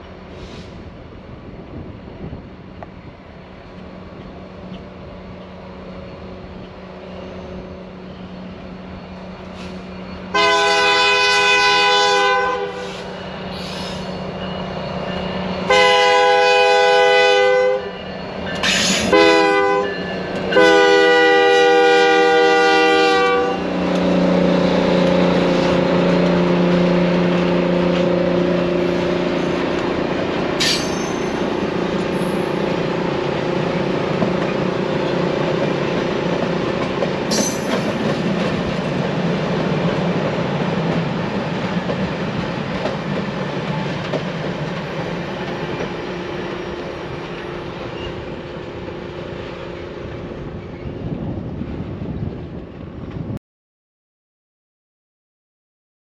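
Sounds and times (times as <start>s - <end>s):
locomotive engines droning: 0.0s - 53.3s
train wheels clicking on rail joints: 2.7s - 10.4s, 18.0s - 19.2s, 19.9s - 20.6s, 23.7s - 48.8s
locomotive air horn: 9.6s - 14.1s, 15.6s - 18.0s, 19.0s - 23.9s.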